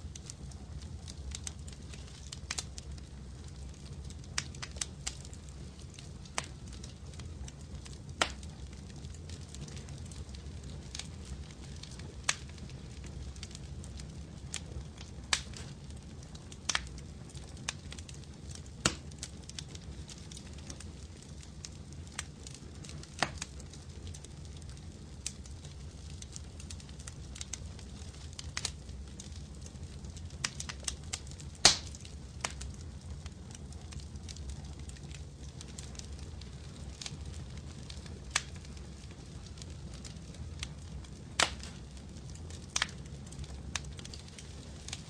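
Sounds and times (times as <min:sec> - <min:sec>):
fire crackling and popping: 0:00.0 - 0:45.0.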